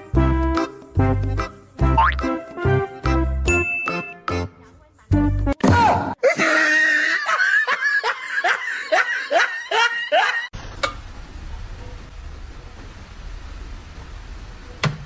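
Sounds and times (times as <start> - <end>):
person laughing hard: 6.2 - 10.5.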